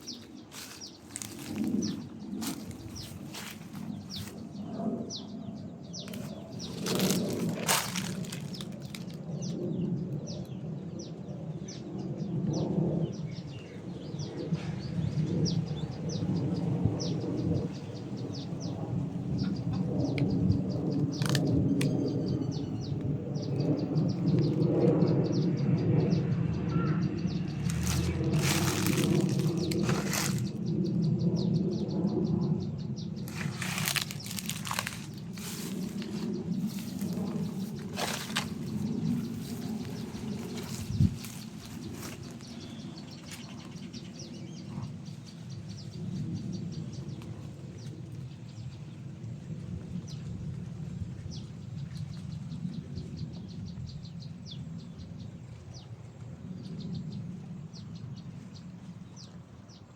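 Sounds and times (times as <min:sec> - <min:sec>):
rustling noise: 0:00.0 - 0:04.5, 0:06.0 - 0:09.2, 0:27.6 - 0:30.6, 0:33.3 - 0:42.6
insects chirping: 0:00.0 - 0:04.6, 0:05.8 - 0:09.3, 0:33.2 - 0:43.0
wind gusting across microphone: 0:00.0 - 0:59.9.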